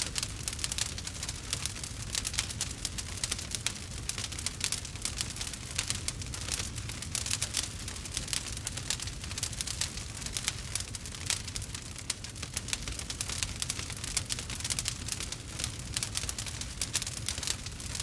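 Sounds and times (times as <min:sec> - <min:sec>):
fire low rumble: 0:00.0 - 0:18.0
logs crackling and popping: 0:00.0 - 0:18.0.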